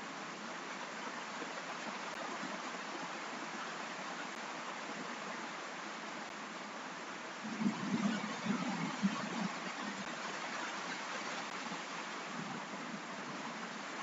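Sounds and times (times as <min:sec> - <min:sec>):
steady rain hiss: 0:00.0 - 0:14.0.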